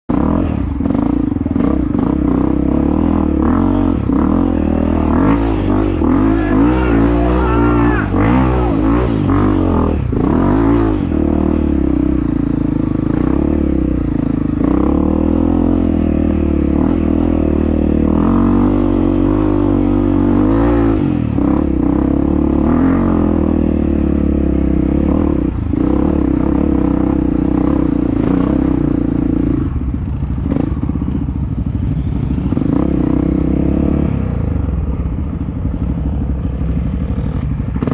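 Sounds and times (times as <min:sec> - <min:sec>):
dirt bike engine revving: 0:00.1 - 0:29.8.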